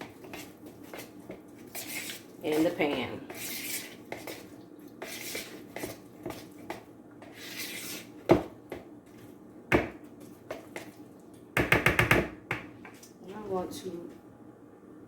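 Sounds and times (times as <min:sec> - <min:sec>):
utensil knocking against mixing bowl: 0:11.6 - 0:12.7.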